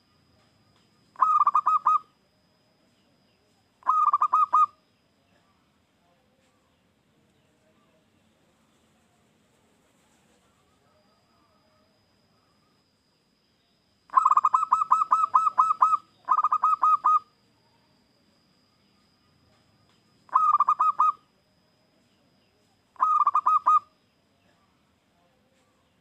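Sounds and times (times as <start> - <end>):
faint high whine: 0.0 - 26.0
dove cooing: 1.2 - 2.1, 3.8 - 4.8, 14.1 - 17.3, 20.3 - 21.2, 23.0 - 23.9.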